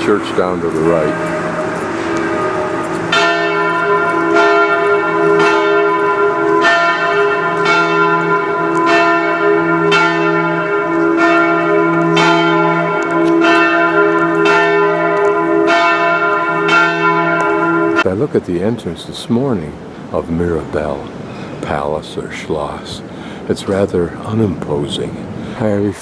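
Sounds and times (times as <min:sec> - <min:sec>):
church bells ringing: 0:00.0 - 0:25.8.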